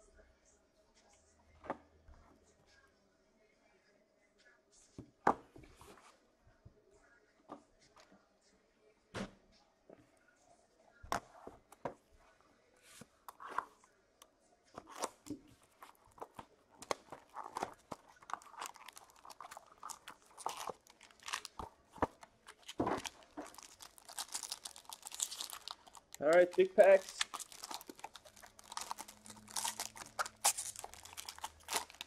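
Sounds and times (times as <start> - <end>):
packaging being torn and crinkled: 15.8 - 32.0.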